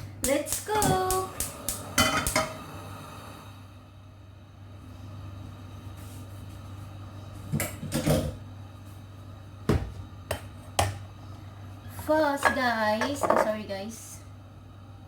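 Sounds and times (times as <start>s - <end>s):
steady low hum: 0.0s - 15.0s
cookware knocking and clattering: 12.4s - 13.6s.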